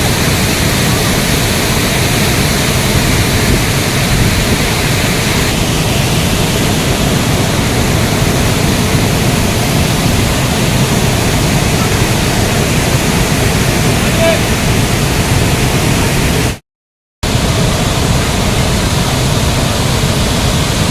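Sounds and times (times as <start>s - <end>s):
large waterfall rushing: 0.0s - 16.6s, 17.2s - 20.9s.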